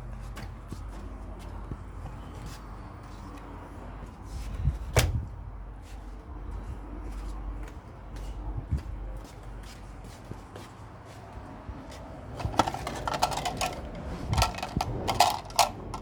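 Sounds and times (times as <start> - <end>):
handling clicks and taps: 12.4 - 16.0.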